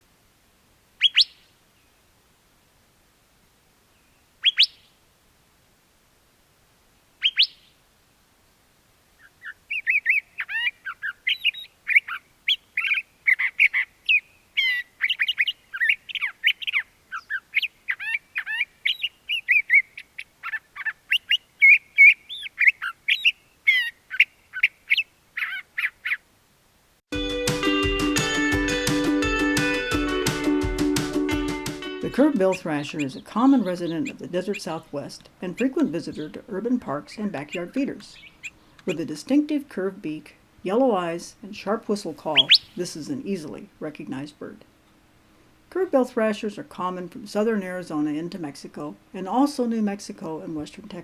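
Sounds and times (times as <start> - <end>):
bird whistled calls: 1.0 - 1.5, 4.4 - 4.9, 7.2 - 7.7, 9.2 - 26.2, 37.5 - 38.8, 42.3 - 42.8
bird warbling song: 1.0 - 2.0, 3.9 - 5.0, 7.2 - 7.8, 9.2 - 26.2, 32.0 - 44.2.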